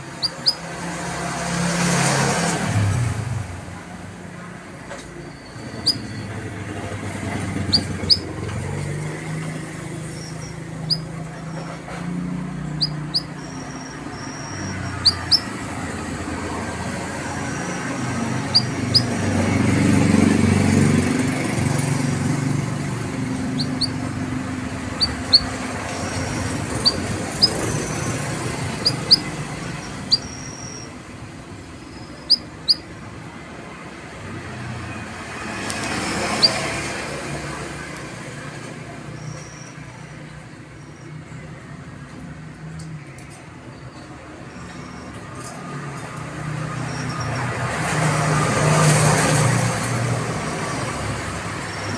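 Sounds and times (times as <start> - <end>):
canary chirping: 0.0 - 1.2, 5.2 - 33.2, 34.8 - 41.6, 43.9 - 48.0, 50.3 - 51.9
road traffic rumbling: 0.0 - 51.9
high whistled bird notes: 5.2 - 6.4, 10.0 - 11.7, 12.7 - 15.9, 17.1 - 19.3, 23.4 - 24.2, 24.9 - 31.0, 31.8 - 32.9.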